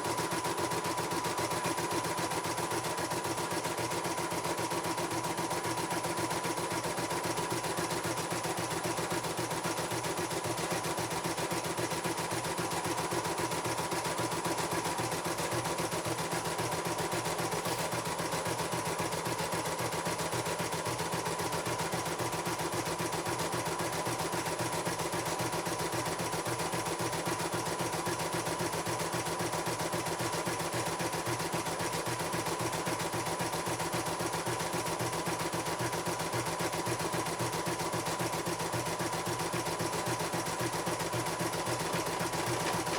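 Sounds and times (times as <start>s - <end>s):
embroidery machine stitching: 41.5s - 42.9s.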